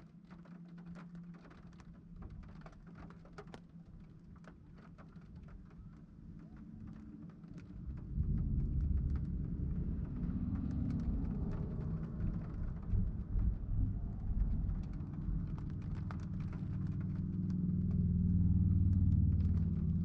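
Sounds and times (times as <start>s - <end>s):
raindrops ticking: 0.0s - 20.0s
deep rumble of thunder: 7.6s - 20.0s.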